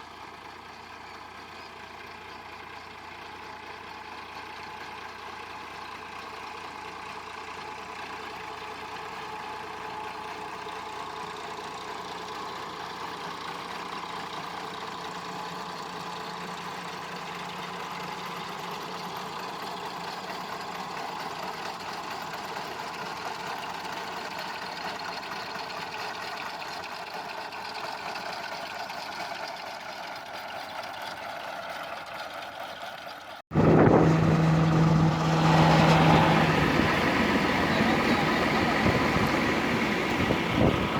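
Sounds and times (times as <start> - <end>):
diesel tractor engine running: 0.0 - 40.9
loud close engine hum: 33.5 - 40.9.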